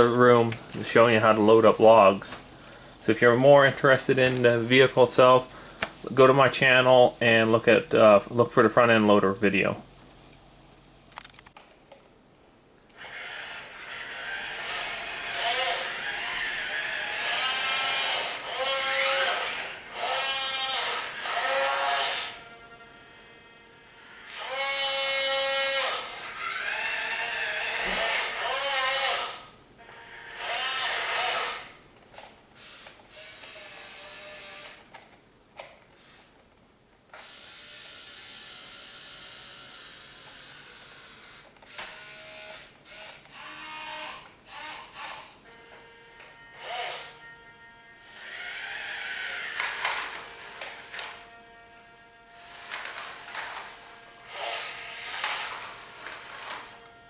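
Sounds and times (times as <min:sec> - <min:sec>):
small electric gear motors whining: 0:13.0 - 0:35.0, 0:37.1 - 0:57.0.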